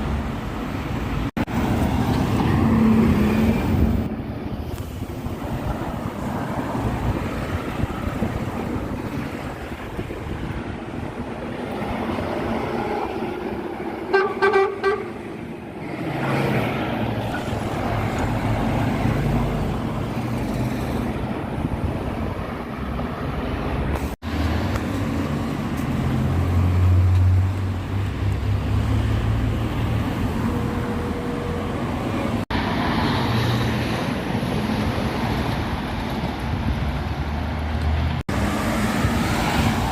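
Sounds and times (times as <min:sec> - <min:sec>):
vehicle horn blast: 0:14.1 - 0:15.2.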